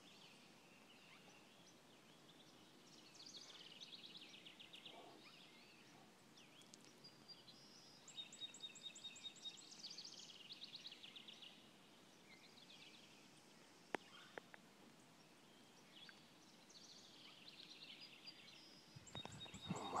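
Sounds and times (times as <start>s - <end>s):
songbirds trilling: 0.1s - 9.4s, 13.9s - 20.0s.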